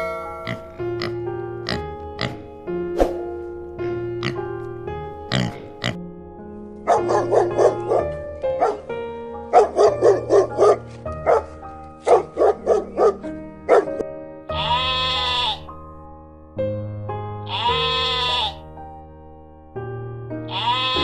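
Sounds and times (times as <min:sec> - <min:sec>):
background music: 0:00.0 - 0:21.0
dog barking: 0:06.9 - 0:08.9, 0:09.5 - 0:14.0.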